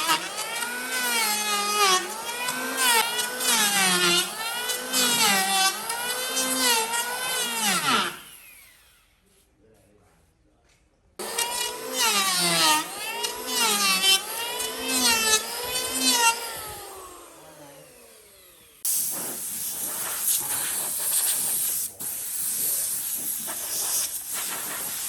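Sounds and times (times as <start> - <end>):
power tool motor whining: 0.0 - 9.2, 11.2 - 18.9.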